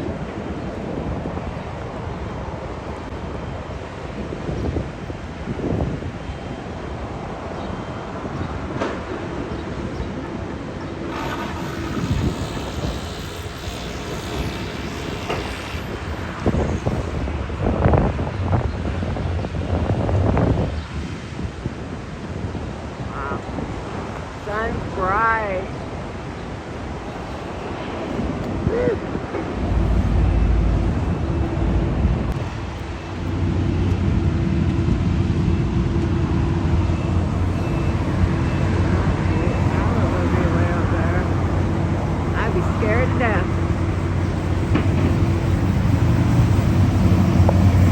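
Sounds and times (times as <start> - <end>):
traffic noise: 0.0 - 47.9
vehicle engine and road noise: 29.2 - 47.9.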